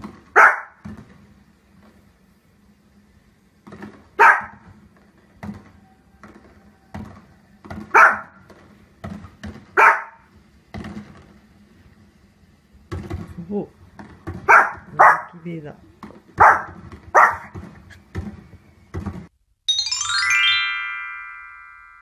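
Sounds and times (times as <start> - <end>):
small dog barking: 0.3 - 0.8, 4.2 - 4.6, 7.9 - 8.4, 9.8 - 10.3, 14.5 - 15.4, 16.4 - 17.6.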